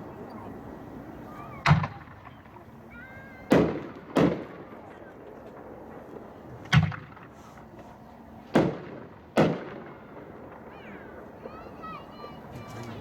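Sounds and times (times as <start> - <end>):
firework shell bangs: 6.6 - 7.4, 8.5 - 10.8.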